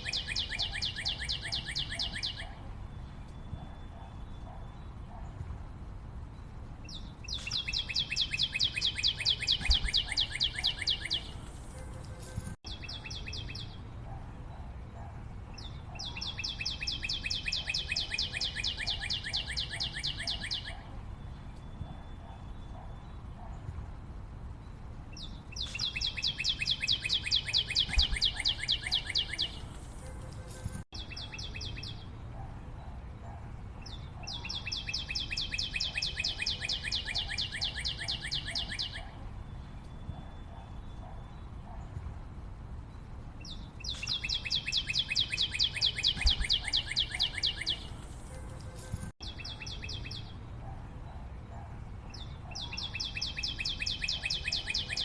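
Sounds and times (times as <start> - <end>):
bird singing rapid high notes: 0.0 - 4.8, 6.9 - 13.8, 25.2 - 32.0, 43.8 - 48.0.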